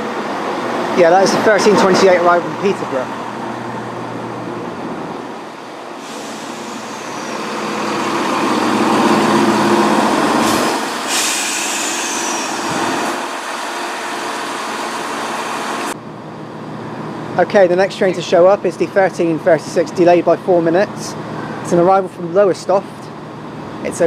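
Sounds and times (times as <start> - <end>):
train diesel engines running: 0.0 - 24.0.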